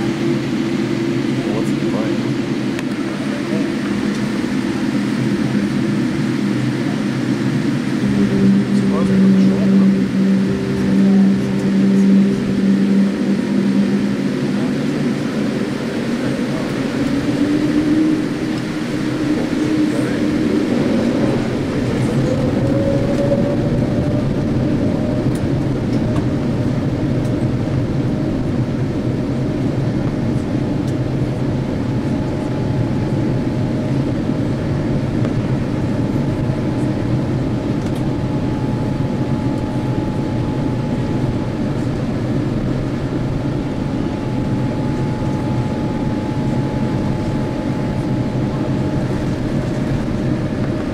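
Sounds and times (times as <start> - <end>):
engine whine: 0.0 - 50.9
jet engine and airflow rushing: 0.0 - 50.9
faint high steady tone: 7.8 - 15.2.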